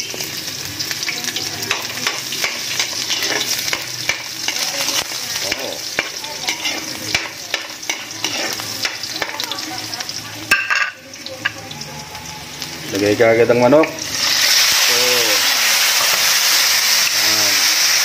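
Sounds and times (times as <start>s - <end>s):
garlic and onion sizzling in oil: 0.0s - 18.0s
spatula scraping a pan: 1.7s - 9.5s.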